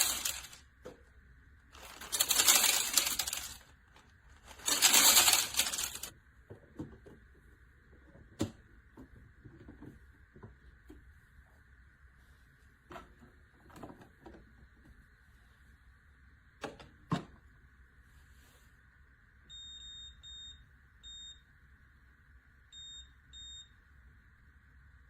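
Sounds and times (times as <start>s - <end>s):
coffee maker high beeps: 19.5s - 21.5s, 22.7s - 23.8s.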